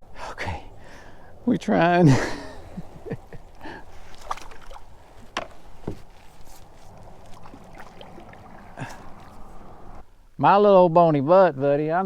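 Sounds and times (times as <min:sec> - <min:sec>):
fishing gear being handled: 0:03.5 - 0:10.0.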